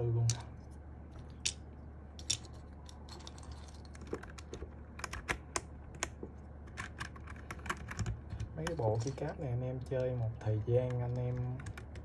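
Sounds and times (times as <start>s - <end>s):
keycaps clicking onto keyboard: 9.8s - 12.0s.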